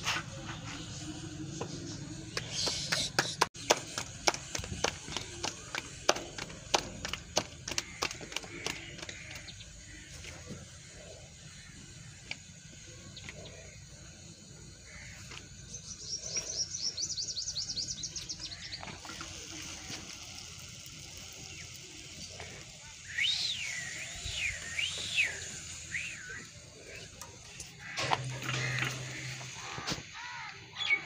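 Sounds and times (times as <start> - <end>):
high bird chirps: 23.0 - 27.3
whistled bird calls sweeping in pitch: 23.1 - 26.5.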